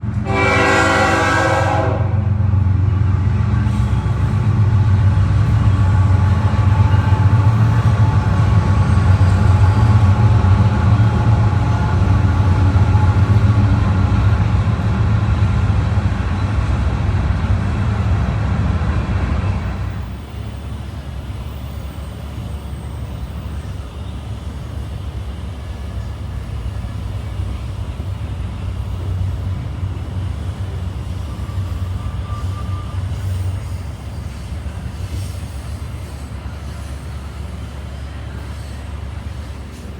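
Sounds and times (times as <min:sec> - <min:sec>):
diesel locomotives rumbling: 0:00.0 - 0:39.9
train cars rolling on rails: 0:00.0 - 0:39.9
train horn blast: 0:00.1 - 0:02.4.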